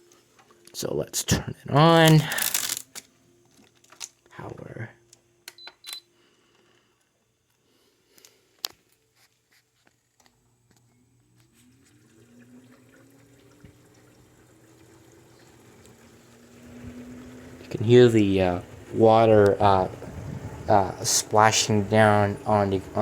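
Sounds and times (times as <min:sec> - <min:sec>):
air conditioner fan humming: 0:00.0 - 0:23.0
fan blade splashing water: 0:11.6 - 0:23.0.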